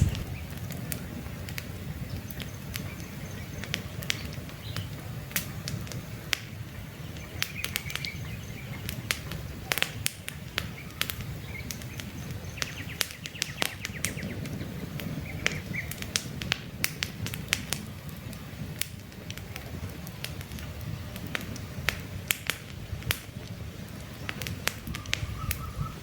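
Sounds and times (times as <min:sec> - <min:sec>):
campfire crackling: 0:00.0 - 0:26.0
low rumble of flame: 0:00.0 - 0:26.0
faint bird chirps: 0:24.9 - 0:26.0.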